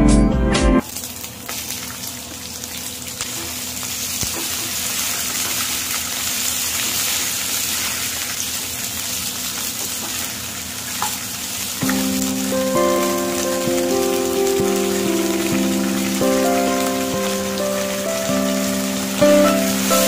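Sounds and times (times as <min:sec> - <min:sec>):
background music: 0:00.0 - 0:00.8, 0:11.8 - 0:20.0
beans sizzling in hot oil: 0:00.8 - 0:20.0.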